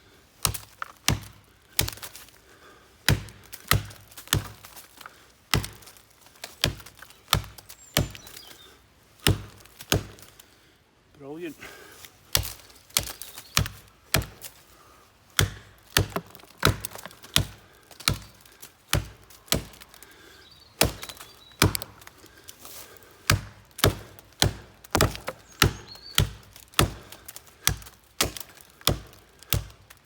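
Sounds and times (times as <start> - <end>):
axe chopping tree trunk: 0.4 - 2.3, 3.0 - 8.5, 9.2 - 10.3, 12.3 - 14.6, 15.3 - 20.1, 20.8 - 22.2, 23.2 - 30.0.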